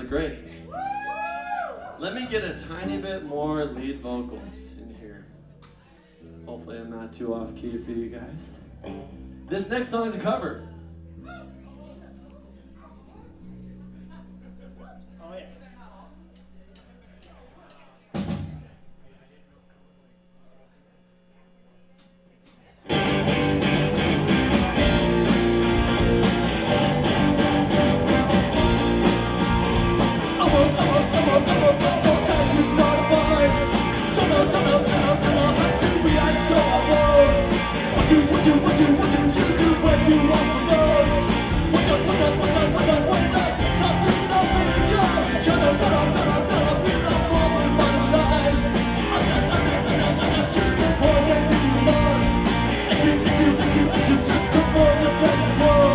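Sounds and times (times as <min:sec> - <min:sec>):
live rock band playing: 0:22.9 - 0:55.9.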